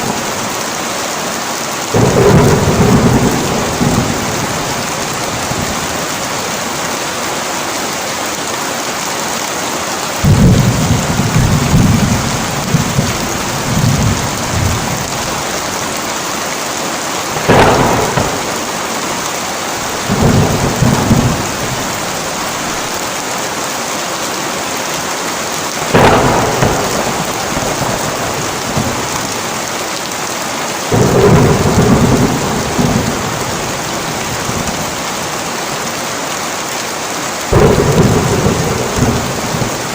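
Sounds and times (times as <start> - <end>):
heavy rain falling: 0.0 - 39.9
sharp thunder cracks: 1.9 - 5.9, 10.2 - 15.6, 17.3 - 22.9, 25.8 - 29.5, 30.9 - 34.9, 37.5 - 39.9
thunder rolling: 1.9 - 6.3, 10.2 - 16.0, 17.3 - 23.0, 25.8 - 29.7, 30.9 - 35.3, 37.5 - 39.9.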